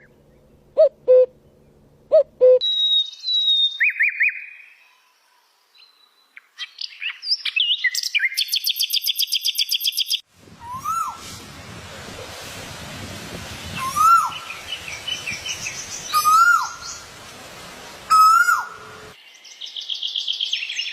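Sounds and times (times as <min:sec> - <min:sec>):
rising and falling bird whistle: 0:02.4 - 0:04.6, 0:07.0 - 0:11.2, 0:18.1 - 0:18.8
fast bird song: 0:05.8 - 0:10.2, 0:13.8 - 0:17.1
high bird chirps: 0:06.6 - 0:11.1
steady hiss: 0:10.3 - 0:19.2.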